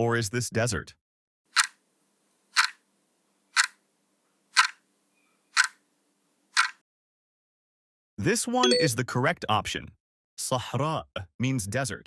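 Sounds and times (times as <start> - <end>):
clock ticking: 1.5 - 1.8, 2.5 - 2.8, 3.5 - 3.8, 4.5 - 4.8, 5.5 - 5.8, 6.5 - 6.8.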